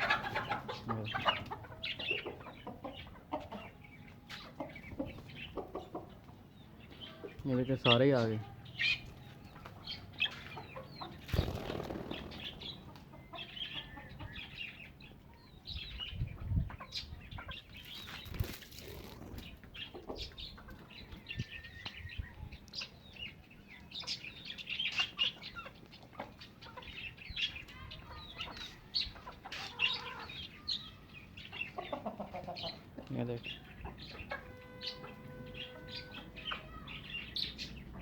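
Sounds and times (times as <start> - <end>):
birds chirping: 0.0 - 38.0
chickens clucking: 0.0 - 38.0
wing flapping: 11.2 - 13.1, 18.1 - 19.6.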